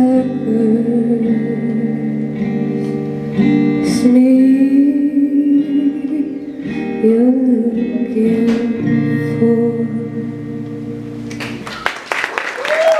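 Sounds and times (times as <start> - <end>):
guitar sustained chords: 0.0 - 11.8
audience applause: 11.3 - 12.9.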